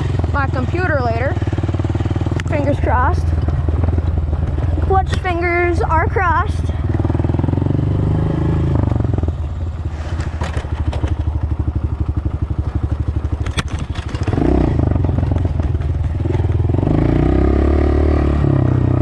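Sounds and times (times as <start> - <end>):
dirt bike engine revving: 0.0 - 9.3, 13.4 - 19.0
sharp clicks: 13.4 - 14.4.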